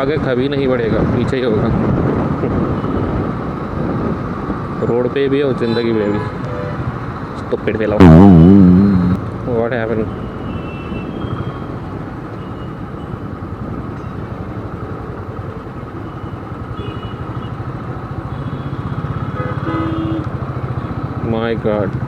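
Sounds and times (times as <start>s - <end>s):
motorcycle engine at low speed: 8.0s - 9.3s, 11.9s - 22.0s.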